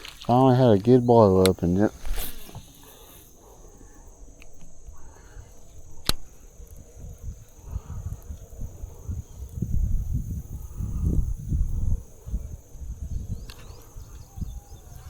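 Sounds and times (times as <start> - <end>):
high-pitched insect chirring: 0.0 - 15.0
sharp click: 6.0 - 6.3.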